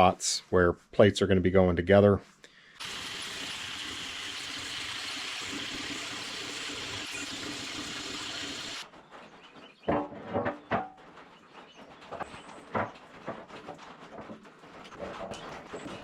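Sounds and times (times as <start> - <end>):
angle grinder grinding steel: 2.8 - 8.8.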